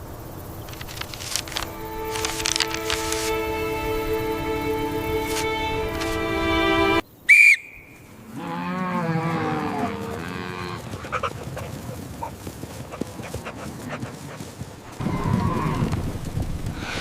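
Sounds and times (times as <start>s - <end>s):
background music: 1.5s - 7.0s
sharp high whistle: 7.3s - 8.0s
cow mooing: 8.2s - 11.2s.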